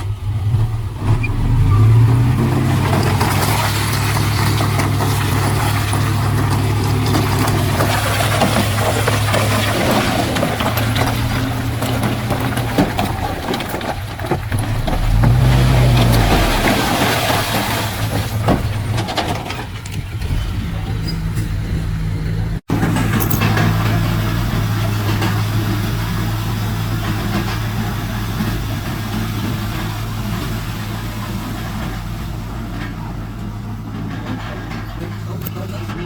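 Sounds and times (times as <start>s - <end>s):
heavy diesel engine running: 0.0s - 36.0s
metal knocks and clanks: 2.4s - 22.1s.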